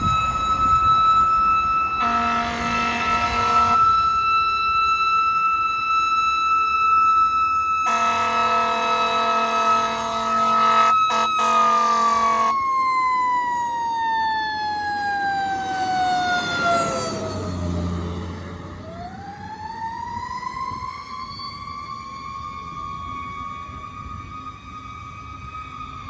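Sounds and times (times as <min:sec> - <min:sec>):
fire engine siren: 0:00.0 - 0:26.0
truck air horn blasting: 0:02.0 - 0:03.8, 0:07.8 - 0:12.6.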